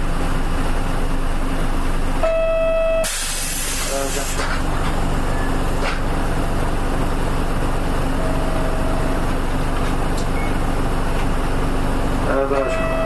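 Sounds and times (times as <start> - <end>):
bus diesel engine rumble: 0.0 - 13.0
short steady tone: 2.2 - 3.2, 8.2 - 9.3, 12.6 - 13.0.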